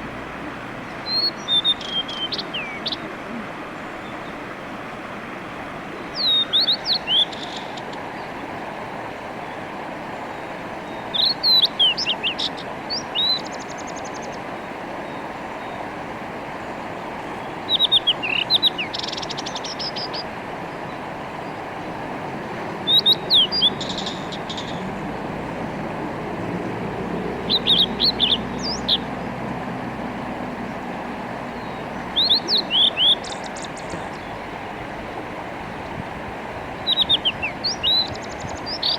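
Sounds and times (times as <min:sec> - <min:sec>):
mountain stream rushing: 0:00.0 - 0:38.9
bird singing whistled notes: 0:01.0 - 0:03.0, 0:06.0 - 0:08.3, 0:10.3 - 0:14.4, 0:17.4 - 0:20.3, 0:22.8 - 0:24.9, 0:27.2 - 0:29.3, 0:31.5 - 0:34.4, 0:36.8 - 0:38.9.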